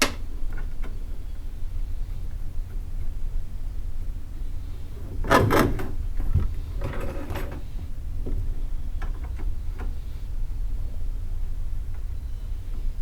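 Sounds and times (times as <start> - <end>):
light knocks and clicks: 5.0 - 8.4.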